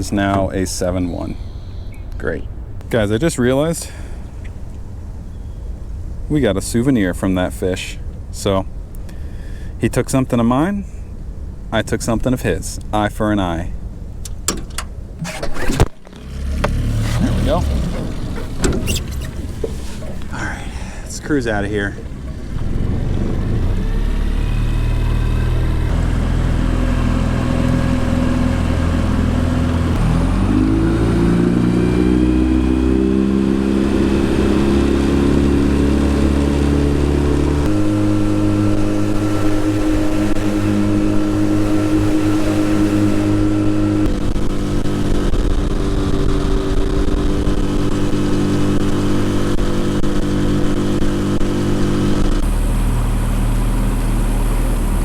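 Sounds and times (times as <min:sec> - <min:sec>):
outboard motor running: 0:13.9 - 0:55.0.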